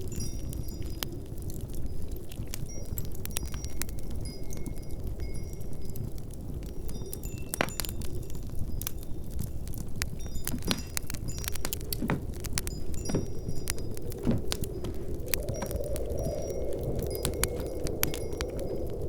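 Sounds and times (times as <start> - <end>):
wood fire crackling: 0.0 - 19.0
glass or metal clinking: 10.3 - 15.0.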